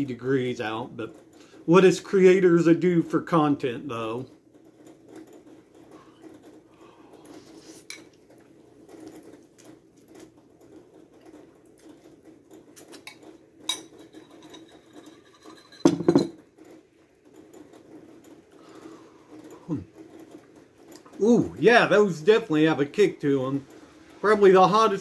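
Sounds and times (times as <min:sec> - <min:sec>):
soft chewing and mouth noises: 0:05.0 - 0:13.4.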